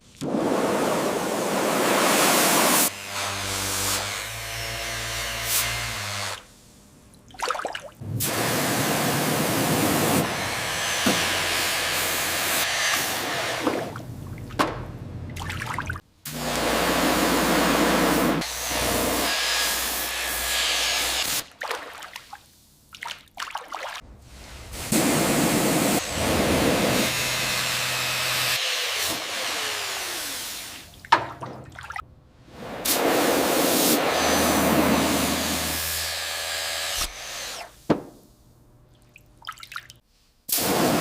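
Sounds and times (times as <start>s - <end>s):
hissing spray: 0.4s - 2.9s, 24.2s - 28.0s, 32.6s - 35.7s.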